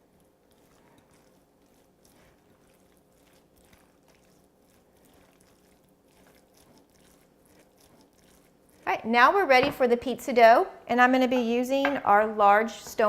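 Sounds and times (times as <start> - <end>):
spoon stirring wet filling: 0.0 - 10.2.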